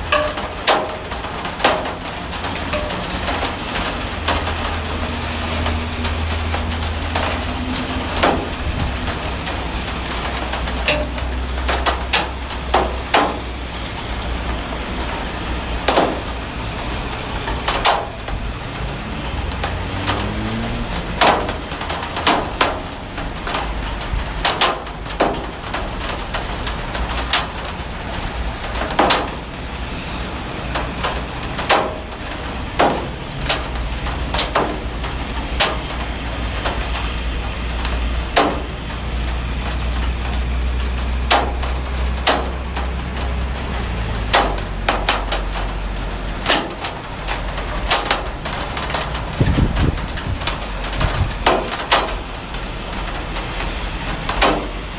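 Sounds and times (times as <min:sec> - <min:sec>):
heavy rain hissing: 0:00.0 - 0:54.9
large raindrops splatting on hard surface: 0:00.0 - 0:54.9.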